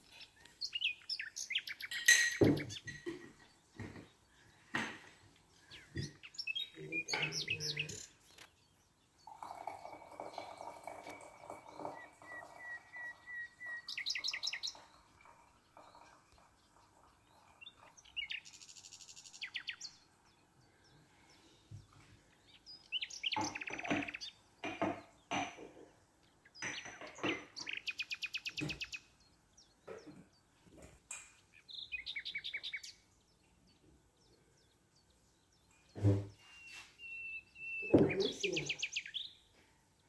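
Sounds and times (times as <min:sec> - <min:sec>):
bird trilling high chirps: 0:11.0 - 0:15.0, 0:36.3 - 0:39.4.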